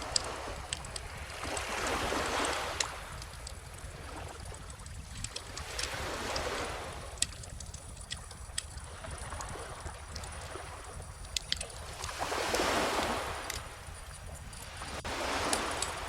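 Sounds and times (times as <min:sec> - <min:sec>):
bonfire crackling and popping: 0:00.0 - 0:16.0
ocean waves washing in: 0:09.1 - 0:16.0.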